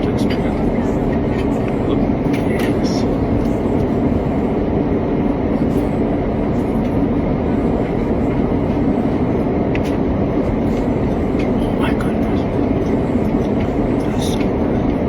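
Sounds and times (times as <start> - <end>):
airliner cabin engine roar: 0.0 - 15.0.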